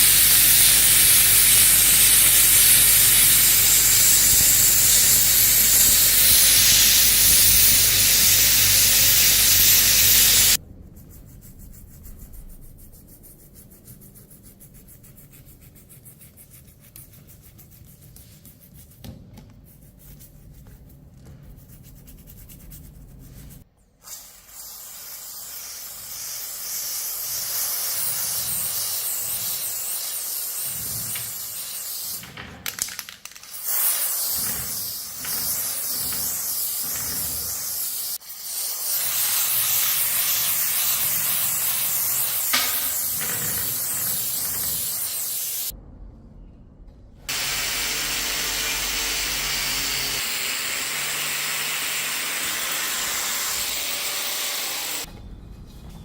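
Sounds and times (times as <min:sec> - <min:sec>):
spray hissing: 0:00.0 - 0:10.6, 0:24.0 - 0:32.2, 0:33.5 - 0:43.2
workshop sounds: 0:27.4 - 0:45.8.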